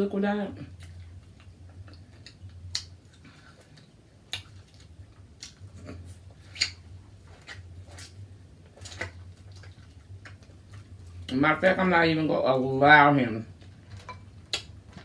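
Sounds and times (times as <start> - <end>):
low steady hum: 0.0 - 15.0
eating clicks and cracks: 0.8 - 11.4, 13.8 - 15.0.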